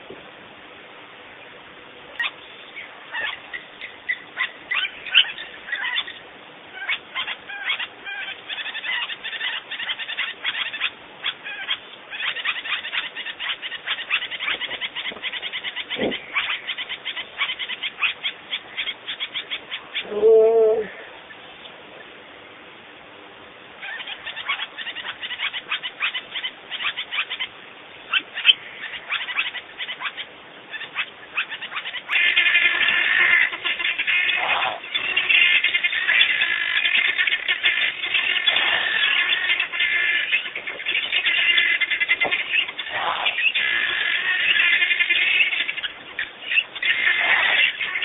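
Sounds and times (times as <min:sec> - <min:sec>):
birds chirping: 0:01.1 - 0:48.0
lower-pitched bird call: 0:02.2 - 0:21.4, 0:23.8 - 0:48.0.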